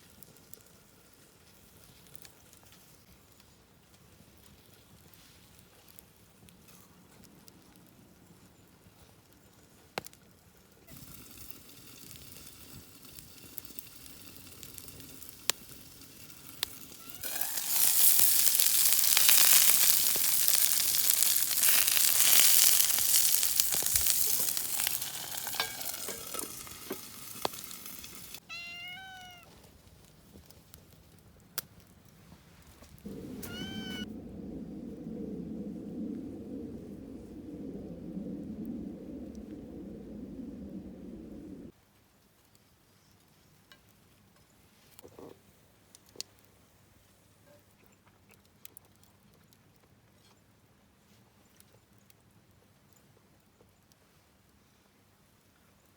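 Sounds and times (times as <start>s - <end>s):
food sizzling in a hot pan: 11.0s - 28.4s
sharp pops of frying: 13.6s - 28.4s.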